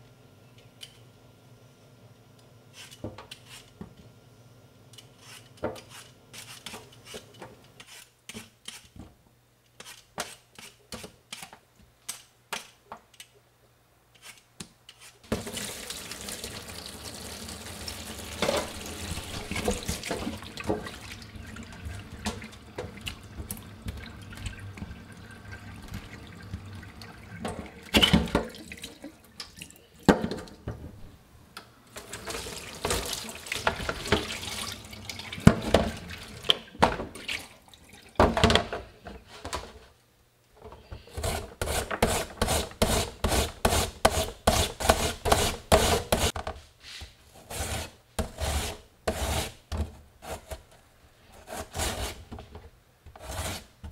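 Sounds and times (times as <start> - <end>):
water splashing into metal sink: 15.3 - 29.7, 32.0 - 38.4
sharp scraping strokes: 51.3 - 52.3, 53.2 - 53.7.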